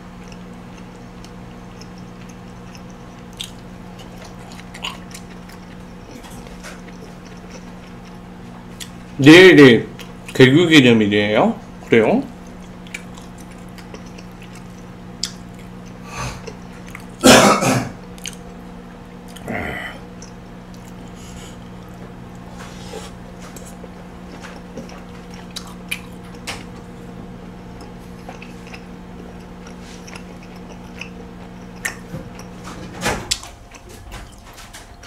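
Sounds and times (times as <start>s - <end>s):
person chewing food: 0.0s - 9.2s, 9.9s - 10.4s, 11.7s - 17.2s, 18.0s - 35.0s
person clearing throat: 17.2s - 18.0s, 19.4s - 20.0s.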